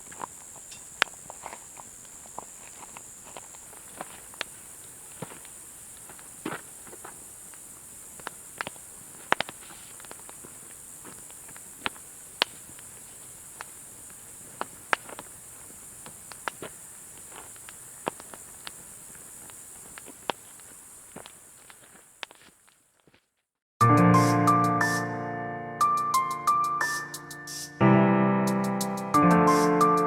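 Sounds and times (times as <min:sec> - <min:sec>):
wood fire crackling and popping: 0:00.0 - 0:22.8.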